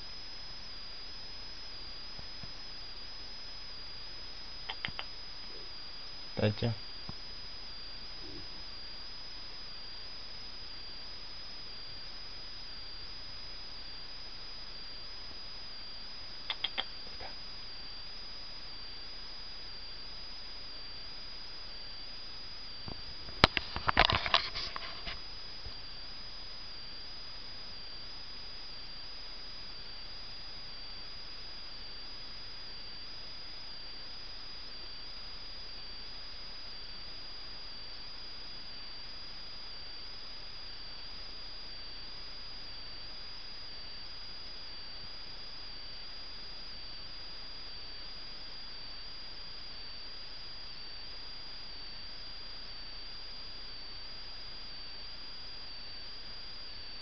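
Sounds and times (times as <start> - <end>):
thin high whine: 0.0 - 32.4.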